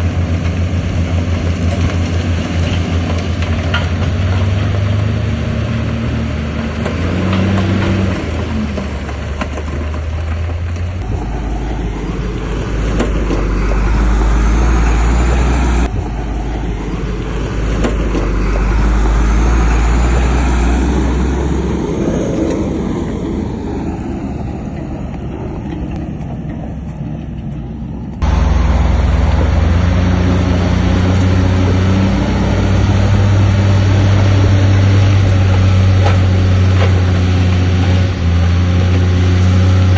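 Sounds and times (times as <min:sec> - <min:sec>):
heavy diesel engine under load: 0:00.0 - 0:39.9.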